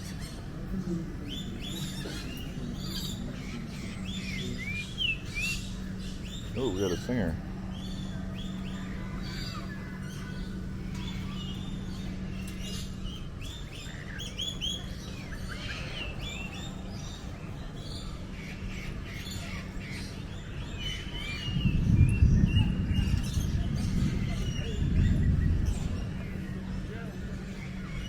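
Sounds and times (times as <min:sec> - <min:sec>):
songbirds singing and chirping: 0:00.0 - 0:28.0
loud low rumble: 0:21.3 - 0:28.0.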